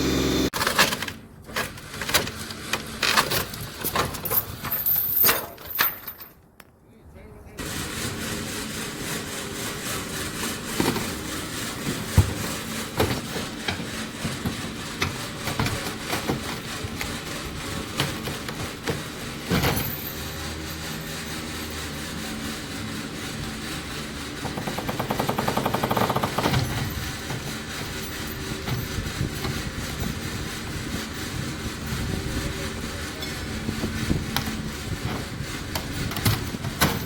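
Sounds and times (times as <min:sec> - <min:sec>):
tractor diesel engine running: 0:00.0 - 0:00.6.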